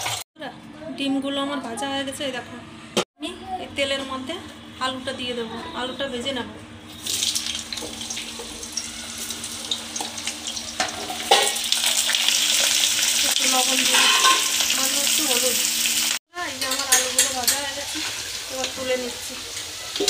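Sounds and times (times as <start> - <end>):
potatoes sizzling in hot oil: 7.0 - 20.0
metal spatula scraping pan: 13.8 - 14.6.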